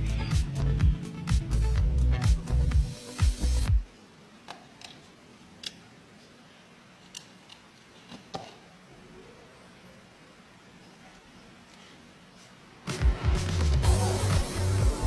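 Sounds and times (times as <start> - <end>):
background music: 0.0 - 3.9, 12.8 - 15.0.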